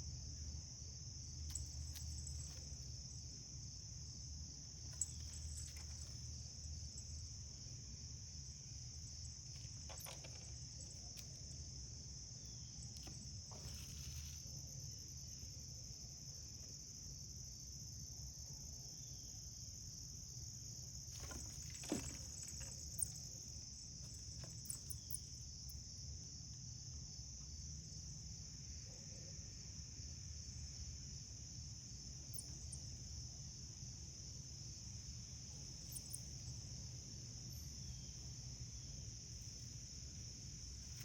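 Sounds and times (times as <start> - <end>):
high-pitched insect chorus: 0.0 - 41.0.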